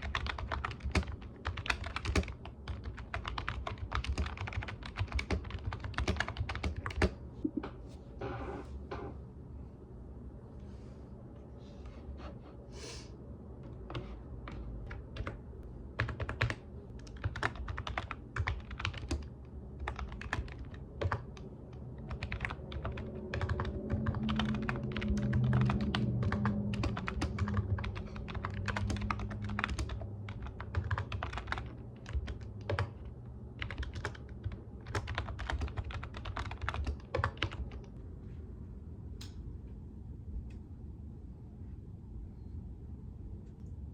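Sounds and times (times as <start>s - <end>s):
keyboard typing clicks: 0.0s - 7.2s, 22.1s - 33.0s
low hum: 7.2s - 34.9s, 37.3s - 43.9s.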